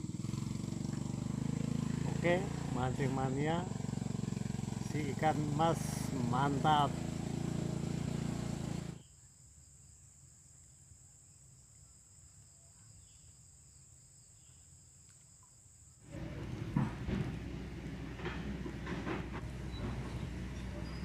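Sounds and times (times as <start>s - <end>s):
low engine-like hum: 0.0s - 9.0s, 16.1s - 21.0s
crickets chirring: 9.0s - 16.1s, 19.4s - 21.0s.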